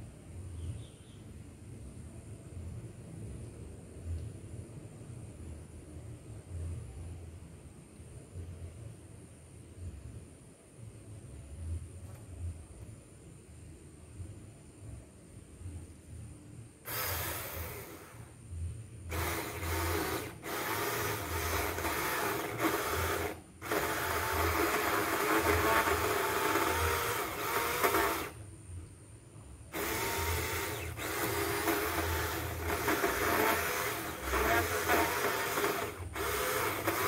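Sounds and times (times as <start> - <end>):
chainsaw cutting tree trunk: 16.9 - 18.1, 19.1 - 28.4, 29.7 - 37.0.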